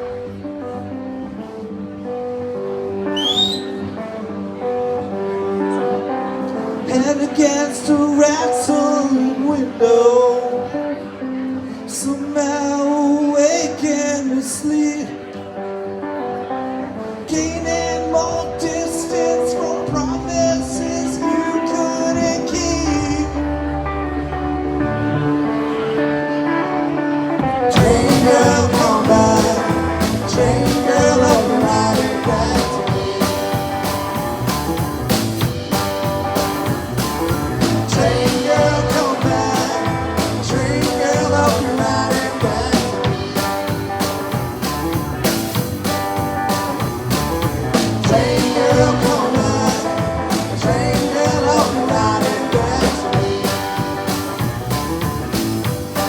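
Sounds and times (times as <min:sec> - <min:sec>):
rock band playing: 0:00.0 - 0:09.1, 0:16.0 - 0:56.0
guitar chords: 0:00.0 - 0:56.0
drums steady beat: 0:27.4 - 0:56.0.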